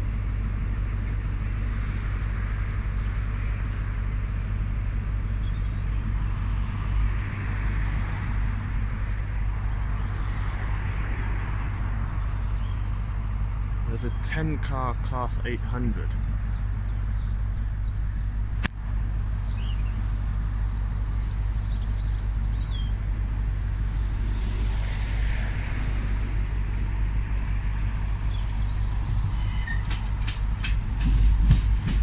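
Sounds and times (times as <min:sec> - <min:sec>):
diesel train rumble: 0:00.0 - 0:32.0
bird chirps: 0:12.2 - 0:23.0, 0:26.6 - 0:30.3
rail clicks: 0:28.7 - 0:32.0.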